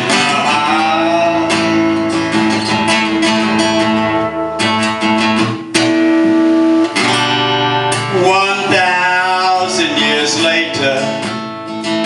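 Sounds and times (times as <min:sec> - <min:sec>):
person singing: 0:00.0 - 0:02.0, 0:08.0 - 0:11.3
acoustic guitar strumming: 0:00.0 - 0:12.0.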